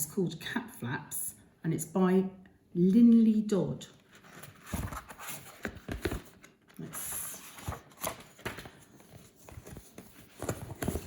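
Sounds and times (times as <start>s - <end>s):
pages rustling: 4.0s - 11.0s.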